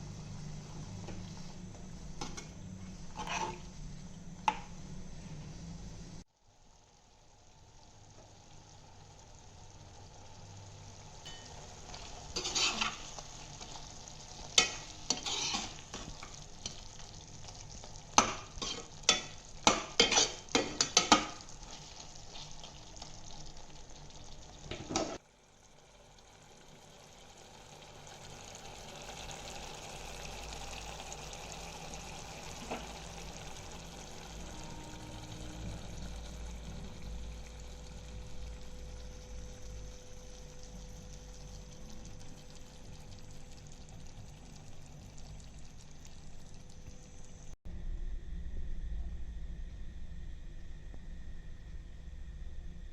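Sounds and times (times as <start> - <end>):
food sizzling: 0.0 - 47.6
spoon scraping a pan: 2.0 - 3.8, 11.3 - 17.0, 18.2 - 22.8.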